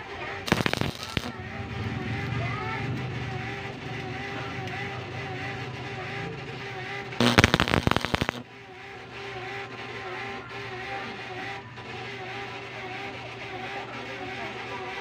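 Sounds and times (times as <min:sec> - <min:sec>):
rapid burst of sharp knocks: 0:00.5 - 0:01.4.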